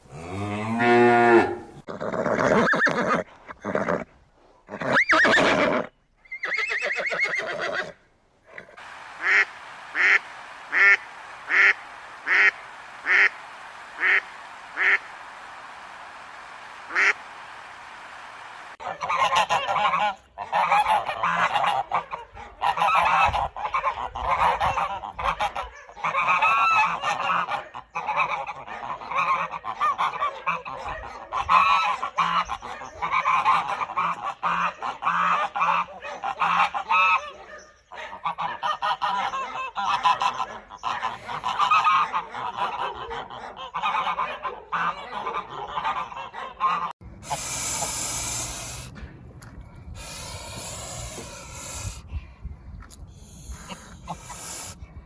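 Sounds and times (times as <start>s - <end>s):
geese honking: 8.8s - 30.6s, 38.2s - 48.9s, 50.0s - 52.0s, 53.4s - 54.8s
short hissing sound: 47.2s - 49.0s, 50.0s - 52.0s, 53.1s - 54.8s.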